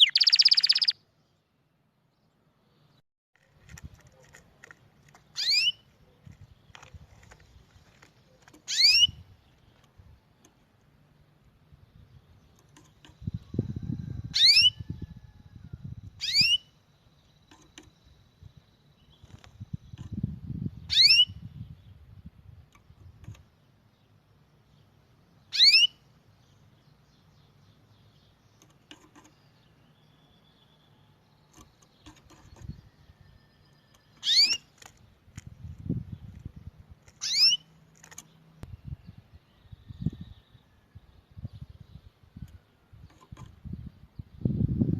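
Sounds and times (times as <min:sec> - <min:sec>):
songbird whistled calls: 0:00.0 - 0:01.0, 0:05.4 - 0:05.8, 0:08.7 - 0:09.2, 0:14.3 - 0:14.9, 0:16.2 - 0:16.8, 0:20.8 - 0:21.5, 0:25.5 - 0:26.0, 0:33.3 - 0:34.7, 0:37.2 - 0:37.6.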